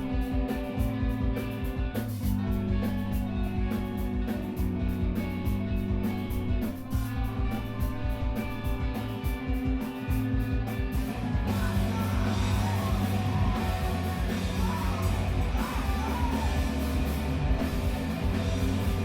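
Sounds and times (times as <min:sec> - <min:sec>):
band playing loud: 0:00.0 - 0:19.0
guitar playing alone: 0:00.0 - 0:19.0
shouted vocals: 0:11.4 - 0:19.0.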